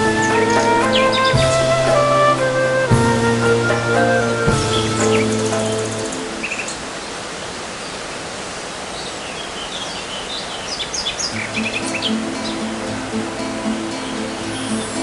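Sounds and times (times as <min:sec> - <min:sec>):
background music: 0:00.0 - 0:06.8, 0:11.4 - 0:15.0
birds chirping: 0:00.0 - 0:15.0
waterfall rushing: 0:00.0 - 0:15.0.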